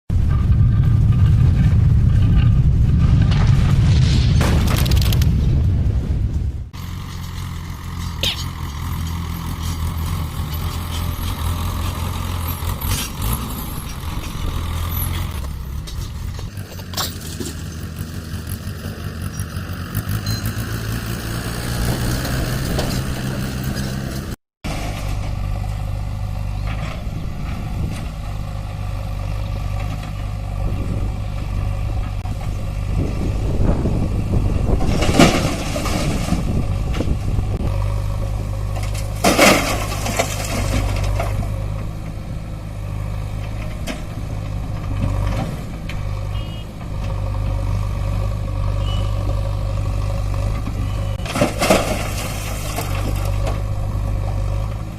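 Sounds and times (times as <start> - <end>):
heavy diesel engine running: 0.1 - 3.8, 4.4 - 54.9
short noisy rushes: 0.1 - 6.8.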